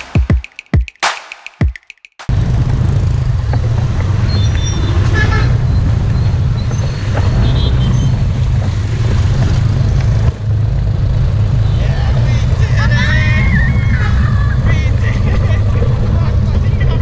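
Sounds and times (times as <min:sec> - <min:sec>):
music beat: 0:00.0 - 0:02.3
motorbike and car engines: 0:02.3 - 0:13.4.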